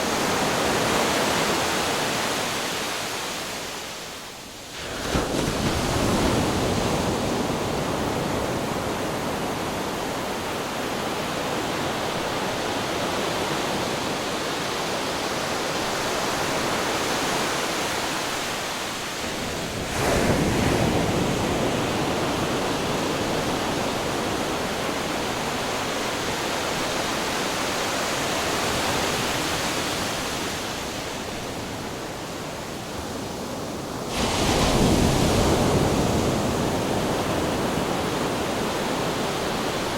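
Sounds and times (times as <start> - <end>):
waves crashing on rocks: 33.6 - 39.9.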